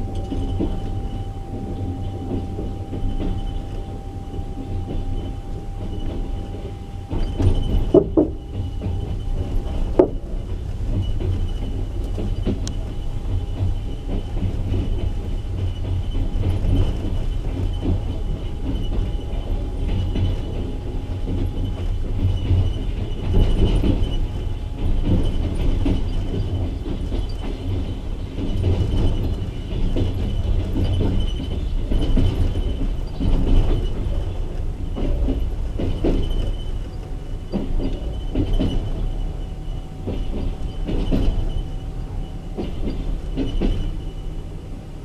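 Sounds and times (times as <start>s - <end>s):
thin high whine: 0.0s - 10.4s
clicks over rail joints: 0.0s - 44.6s
train wheels rumbling: 0.0s - 45.0s.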